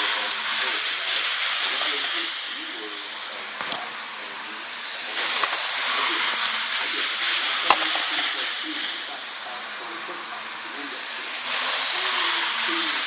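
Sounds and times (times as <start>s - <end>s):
steady hiss: 0.0s - 13.0s
sharp click: 3.6s - 3.8s.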